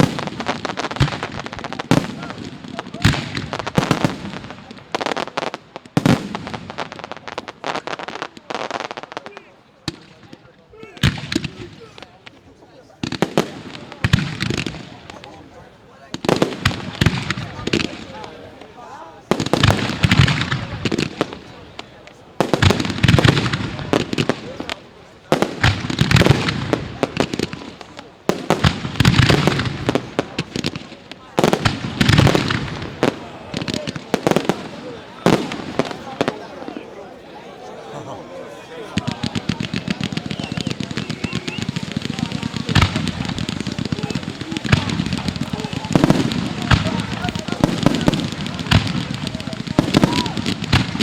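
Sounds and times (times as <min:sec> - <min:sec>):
fireworks crackling and popping: 0:00.0 - 0:37.1, 0:38.9 - 0:51.0
loud firework bang: 0:39.1 - 0:51.0.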